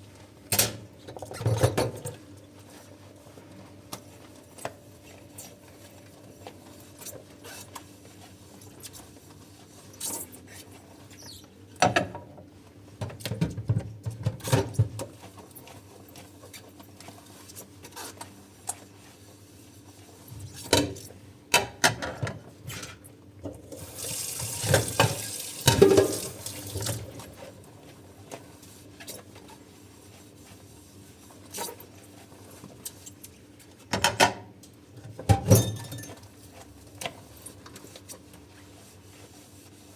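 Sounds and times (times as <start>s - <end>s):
dishes clinking and knocking: 24.8s - 26.3s.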